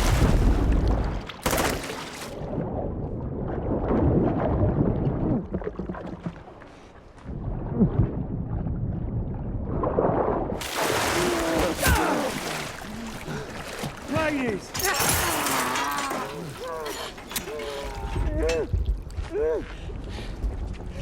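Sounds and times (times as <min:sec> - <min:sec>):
water sloshing and splashing: 0:00.0 - 0:20.6.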